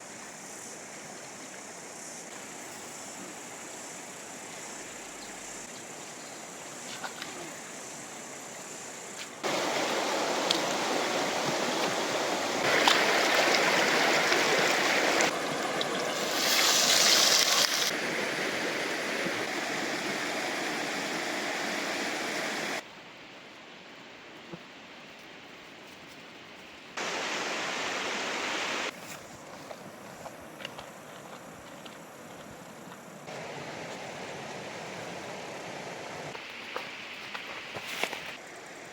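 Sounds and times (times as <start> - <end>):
rushing river water: 9.4 - 22.8, 27.0 - 28.9, 33.2 - 38.9.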